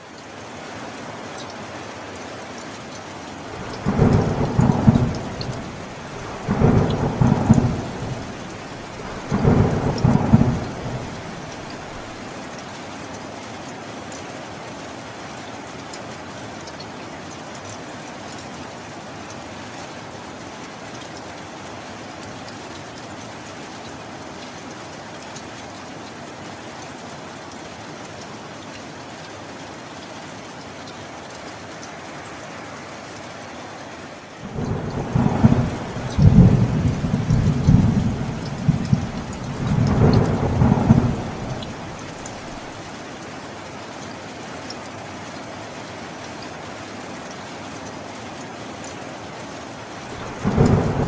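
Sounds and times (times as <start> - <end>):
heavy rain: 0.0 - 51.0
thunder clap rolling: 3.6 - 12.2, 34.4 - 42.8, 50.2 - 51.0.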